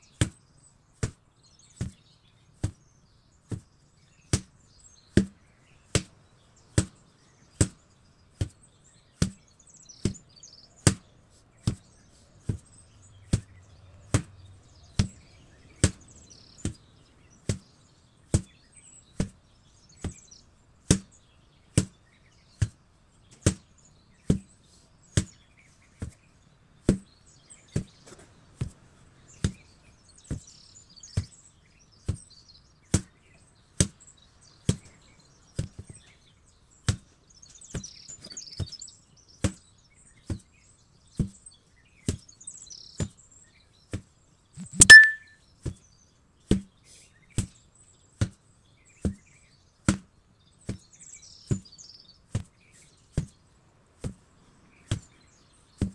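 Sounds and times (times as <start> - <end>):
sledgehammer ringing clang: 44.8 - 45.3.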